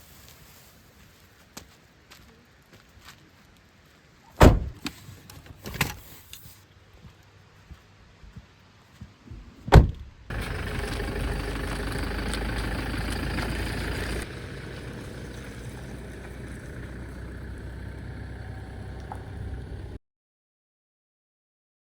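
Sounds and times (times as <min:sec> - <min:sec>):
vehicle door thudding shut: 0:04.4 - 0:04.8, 0:09.7 - 0:10.1
car engine idling: 0:10.3 - 0:20.0.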